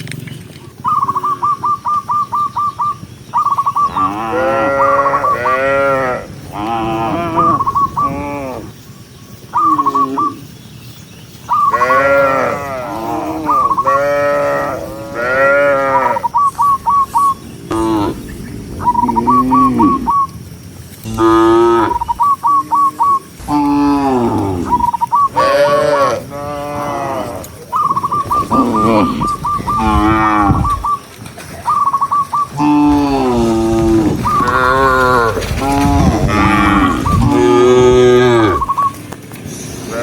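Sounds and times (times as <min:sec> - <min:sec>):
cattle mooing: 0:03.9 - 0:08.7, 0:11.7 - 0:16.2, 0:18.9 - 0:20.2, 0:21.0 - 0:22.1, 0:23.4 - 0:30.8, 0:32.5 - 0:38.8.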